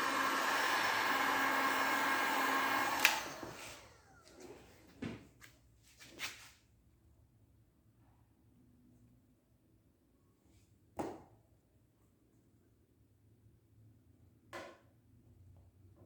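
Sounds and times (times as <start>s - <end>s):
heat gun blowing: 0.0s - 4.4s.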